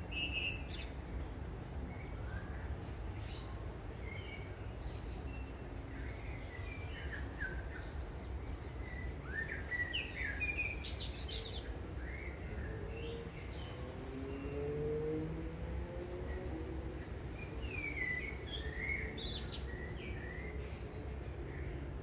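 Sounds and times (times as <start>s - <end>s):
birds chirping: 0.0s - 22.0s
faint rising drone: 11.2s - 22.0s.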